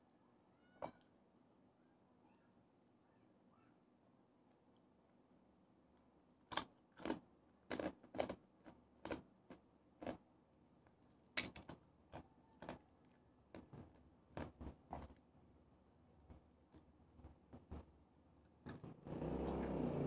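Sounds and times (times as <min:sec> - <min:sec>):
crunchy chewing of fried food: 0:06.5 - 0:10.2.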